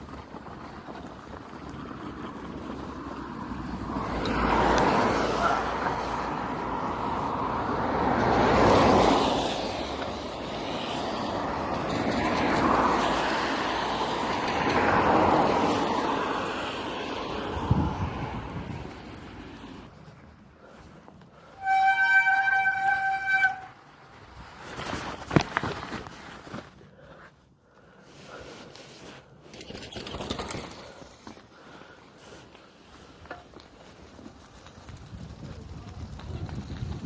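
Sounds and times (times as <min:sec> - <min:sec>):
outdoor rushing noise: 0:00.0 - 0:21.7.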